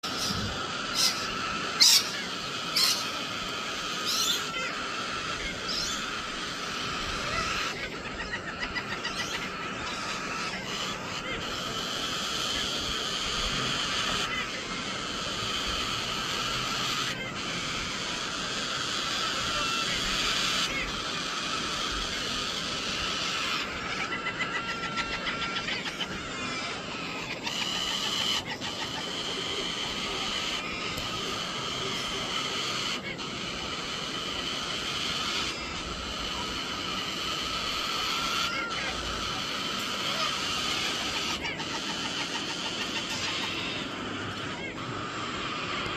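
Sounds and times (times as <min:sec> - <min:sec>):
birds chirping: 0:00.0 - 0:45.9.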